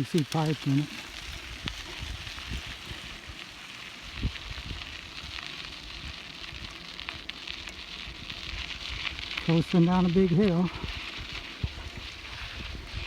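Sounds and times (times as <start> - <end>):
bicycle tyres crunching on gravel: 0.0 - 13.0.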